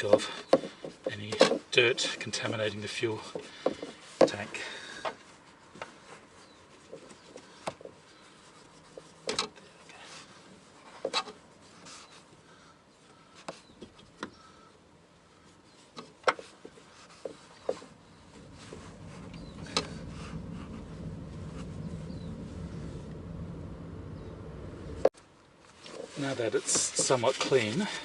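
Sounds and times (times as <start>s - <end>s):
cloth rubbing on metal: 1.0s - 4.6s, 5.2s - 12.4s, 15.3s - 23.9s, 25.7s - 28.0s.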